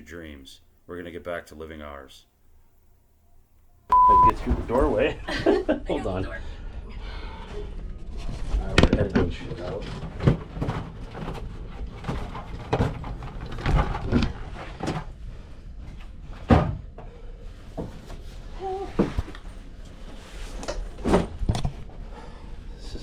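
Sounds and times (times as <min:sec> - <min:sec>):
low background rumble: 0:02.4 - 0:18.8.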